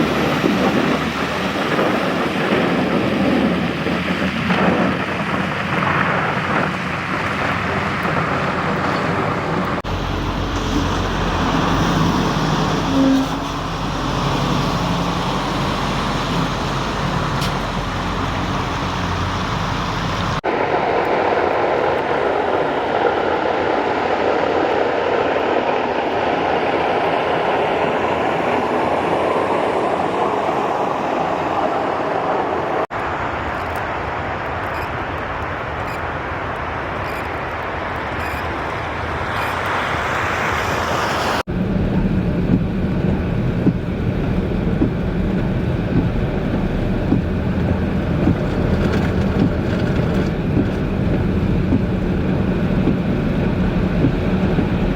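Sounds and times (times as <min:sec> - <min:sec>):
engine running: 0:00.0 - 0:20.5, 0:39.2 - 0:54.9
road noise rushing: 0:00.0 - 0:54.9.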